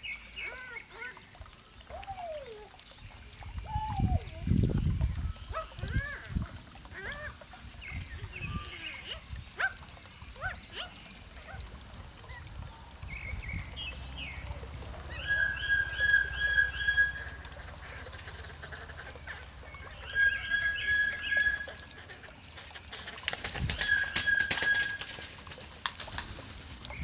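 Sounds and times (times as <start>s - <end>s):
soft bird calls: 0.0s - 25.4s
bird calling loud phrases: 0.1s - 2.8s, 3.4s - 4.5s, 5.4s - 12.7s, 13.6s - 23.2s.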